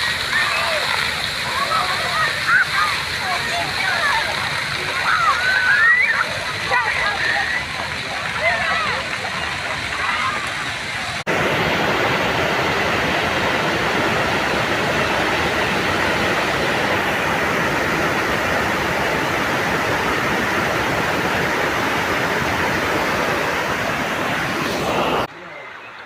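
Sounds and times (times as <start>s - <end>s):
rushing water: 0.0s - 26.0s.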